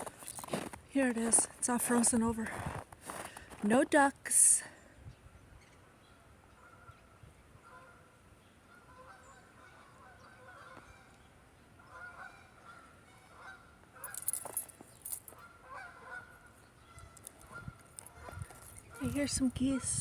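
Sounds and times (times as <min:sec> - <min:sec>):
geese honking: 0:07.6 - 0:14.2, 0:15.4 - 0:20.0.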